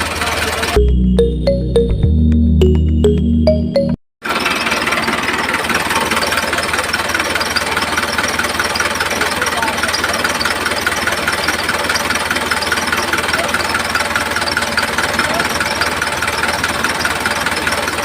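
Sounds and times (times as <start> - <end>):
tractor engine idling: 4.3 - 18.0.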